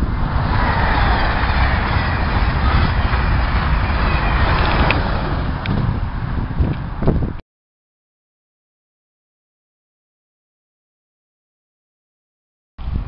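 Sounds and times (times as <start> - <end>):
train wheels rolling on rail: 0.0 - 7.4
wind rumble on microphone: 0.0 - 7.4, 12.8 - 13.0.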